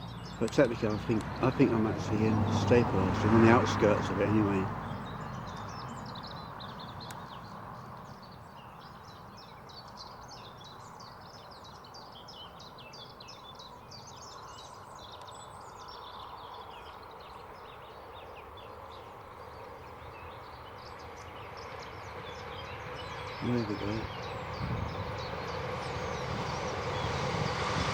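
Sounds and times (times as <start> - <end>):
songbirds chirping: 0.0 - 27.9.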